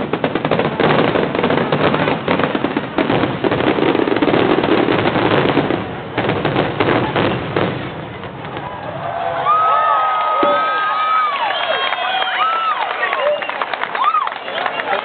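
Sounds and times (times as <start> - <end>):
fireworks barrage: 0.0 - 15.0.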